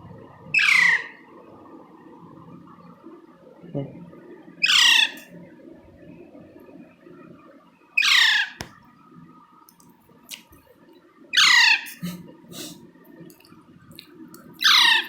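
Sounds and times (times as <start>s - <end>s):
parakeet squawks: 0.6s - 1.1s, 4.6s - 5.3s, 8.0s - 8.7s, 11.4s - 12.1s, 14.6s - 15.0s.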